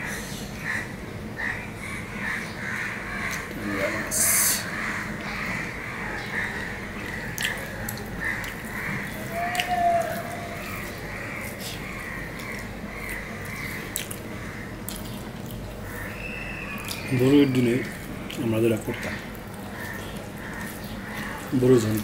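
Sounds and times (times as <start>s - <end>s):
person chewing with wet smacks: 3.2s - 3.6s, 5.2s - 22.0s.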